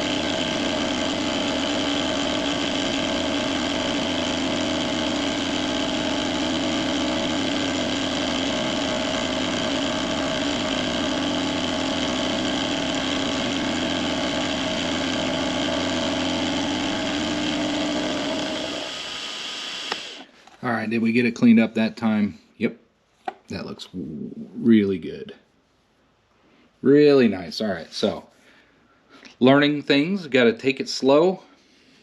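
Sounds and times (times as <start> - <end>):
milling machine motor whine: 0.0 - 20.3.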